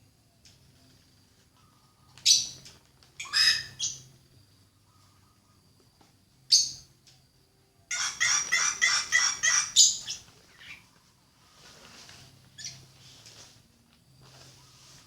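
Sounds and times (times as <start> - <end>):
bird harsh calls: 3.2 - 4.0, 7.9 - 10.8.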